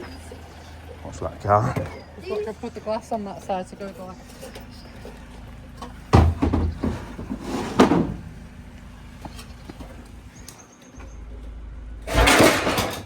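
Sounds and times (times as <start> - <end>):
scrap rattling and knocking: 4.0 - 8.4, 12.1 - 13.0
loud clattering crash of scrap: 6.1 - 8.3, 12.1 - 13.0
sharp bang of scrap: 6.4 - 8.2, 12.1 - 13.0.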